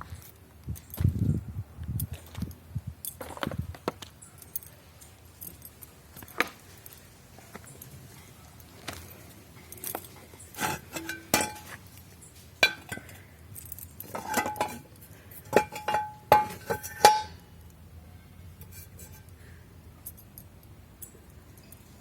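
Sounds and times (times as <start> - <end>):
hard objects clinking together: 9.7 - 11.8, 12.6 - 17.5.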